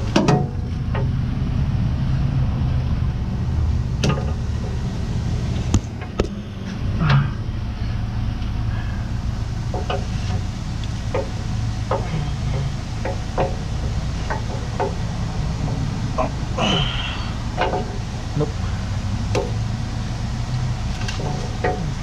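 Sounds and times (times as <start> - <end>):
metal knocks and clanks: 0.0 - 1.2, 9.7 - 10.5, 11.1 - 16.4, 17.5 - 18.1, 21.0 - 22.0
truck engine idling: 0.0 - 22.0.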